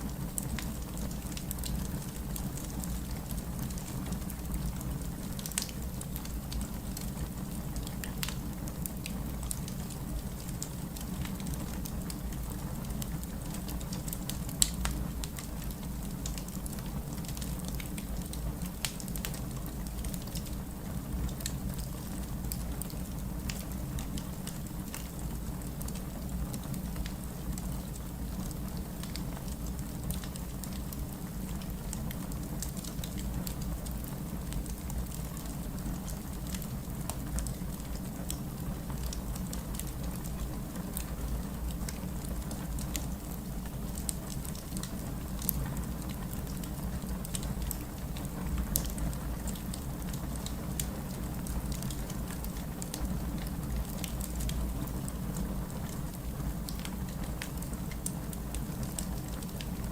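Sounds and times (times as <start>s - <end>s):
fireplace fire crackling: 0.0s - 59.9s.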